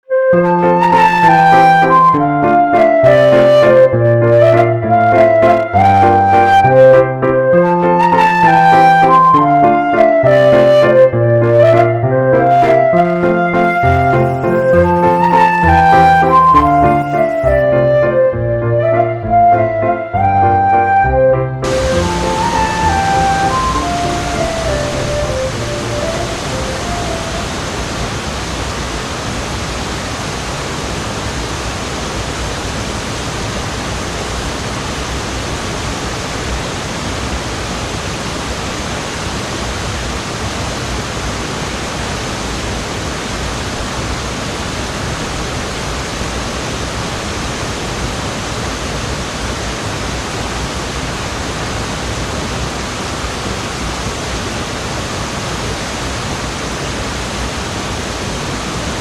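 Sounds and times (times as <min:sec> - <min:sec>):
waterfall rushing: 0:21.6 - 0:59.0.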